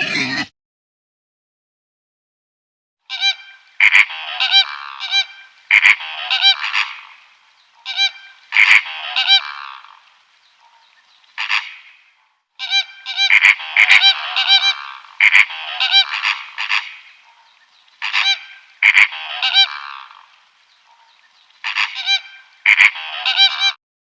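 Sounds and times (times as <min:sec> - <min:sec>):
bird honking loudly: 0:03.1 - 0:10.0, 0:12.6 - 0:23.8.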